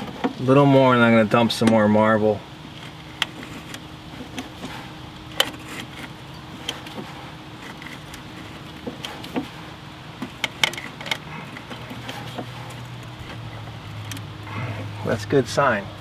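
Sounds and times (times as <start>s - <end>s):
low steady hum: 0.0s - 16.0s
metal clicks of hand tools: 10.2s - 14.3s.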